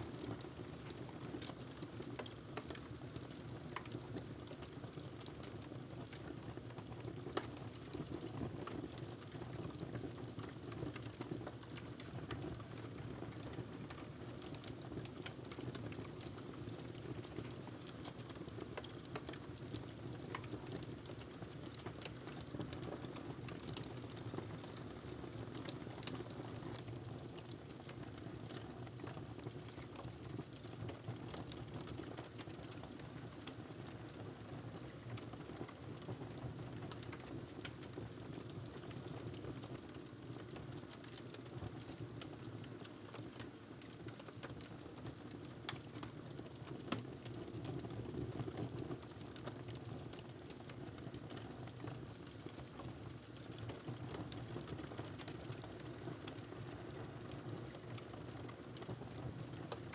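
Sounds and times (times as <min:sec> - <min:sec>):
wood fire crackling: 0:13.4 - 0:26.2, 0:27.4 - 0:34.2, 0:36.8 - 0:48.0, 0:49.0 - 0:59.9.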